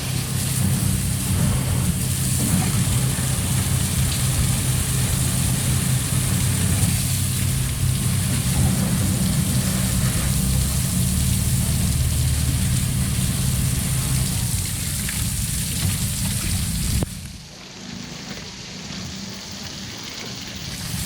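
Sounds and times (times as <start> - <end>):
water spray hissing: 0.0 - 17.4
engine running: 0.0 - 21.0.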